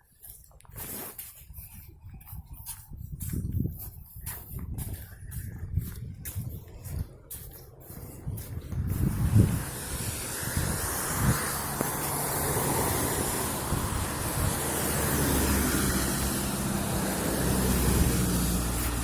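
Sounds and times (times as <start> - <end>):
vehicle engine running: 5.8 - 19.0.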